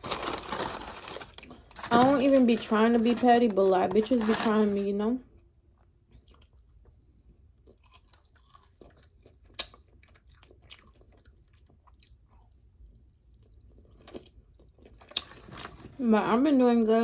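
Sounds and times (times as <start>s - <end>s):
person chewing crunchy food: 5.4s - 15.8s.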